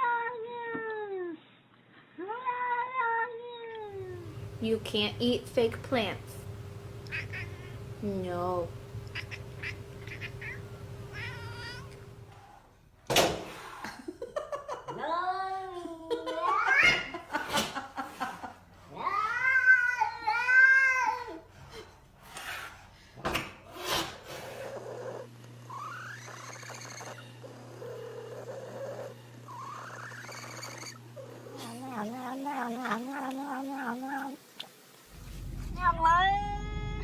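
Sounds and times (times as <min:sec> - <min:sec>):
cat yowling: 0:09.1 - 0:12.0.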